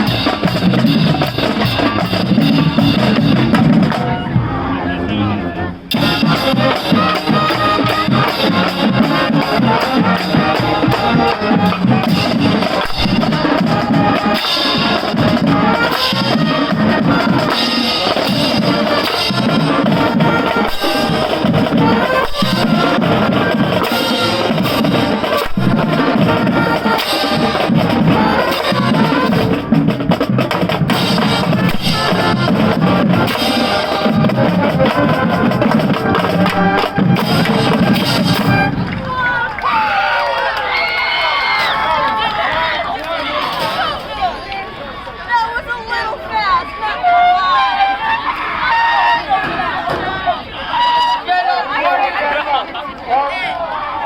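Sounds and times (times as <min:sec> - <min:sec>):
snare and bass drums: 0:00.0 - 0:04.6, 0:05.9 - 0:39.3
marching band playing: 0:00.0 - 0:53.5.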